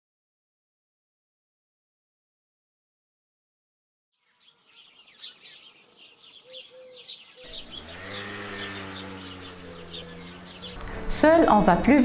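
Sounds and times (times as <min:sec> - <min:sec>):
small birds chirping: 0:04.2 - 0:11.6
low steady drone: 0:09.4 - 0:12.0.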